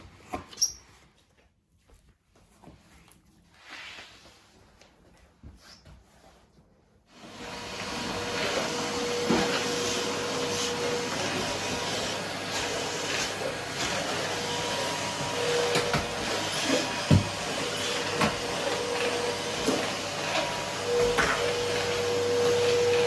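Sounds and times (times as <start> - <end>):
vacuum cleaner running: 7.1 - 23.0.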